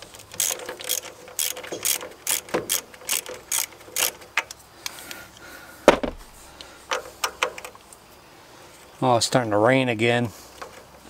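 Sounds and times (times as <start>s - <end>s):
ratchet wrench clicking: 0.0s - 5.0s
loud knock: 5.9s - 6.2s.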